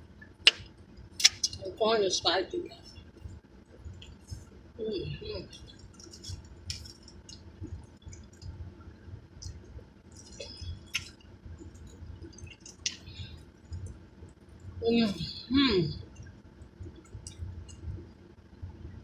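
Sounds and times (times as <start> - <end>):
steady low rumble: 0.0 - 19.0
wet mouth smacks chewing: 9.4 - 14.0.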